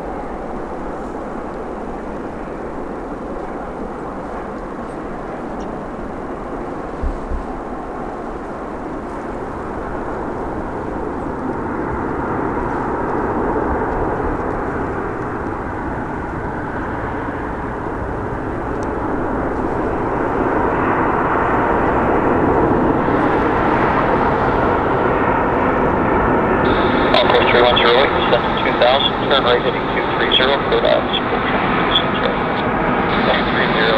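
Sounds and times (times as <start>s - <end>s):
high jet whine: 0.0s - 33.9s
jet engines rushing: 0.0s - 33.9s.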